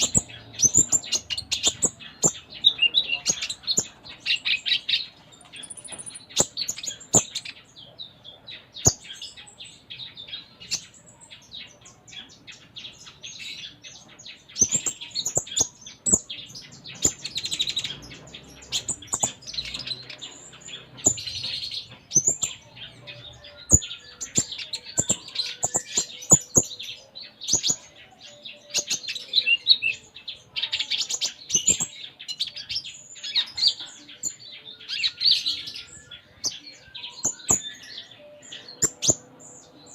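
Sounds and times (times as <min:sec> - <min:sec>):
sharp bird clicks: 0:00.0 - 0:02.4, 0:05.6 - 0:07.5, 0:38.8 - 0:39.2
sunbird chirping and twittering: 0:00.0 - 0:39.9.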